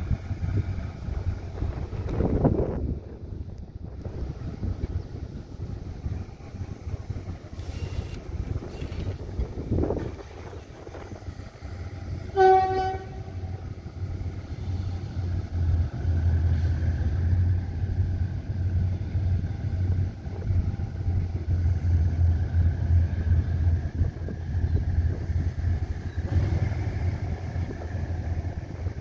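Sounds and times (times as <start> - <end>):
boxcars rumbling on rails: 0.0 - 29.0
locomotive horn blast: 12.2 - 13.7.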